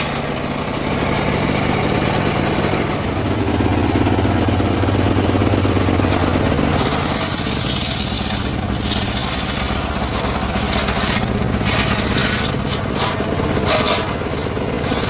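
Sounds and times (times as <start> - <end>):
saw engine drone: 0.0 - 15.0
saw blade rasping in wood: 6.1 - 15.0.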